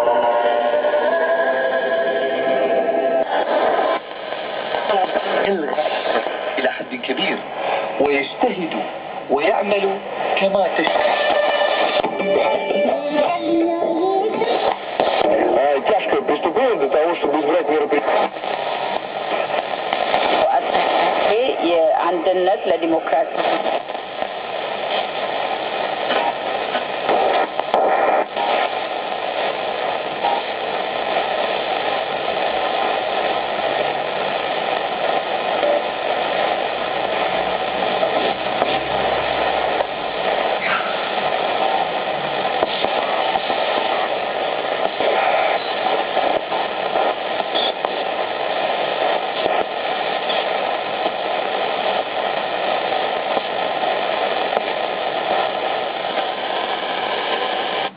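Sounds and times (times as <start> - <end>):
radio static and hiss: 0.0 - 57.9
faint radio whistles: 39.6 - 41.8, 42.5 - 52.0.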